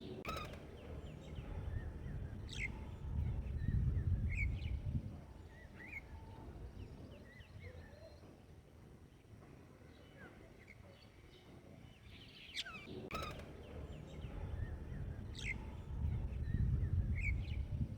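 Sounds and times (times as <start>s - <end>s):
small birds chirping: 0.0s - 8.6s, 9.2s - 17.9s
low rumble: 13.4s - 17.9s.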